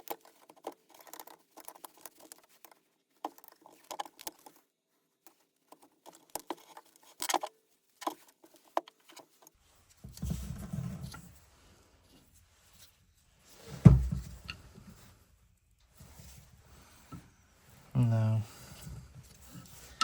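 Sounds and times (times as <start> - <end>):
heavy thump: 13.8 - 14.4.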